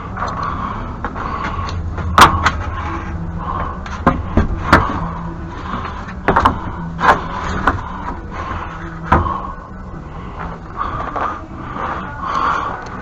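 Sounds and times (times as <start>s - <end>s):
low background noise: 0.0s - 13.0s
sharp knocks and bangs: 2.0s - 2.6s.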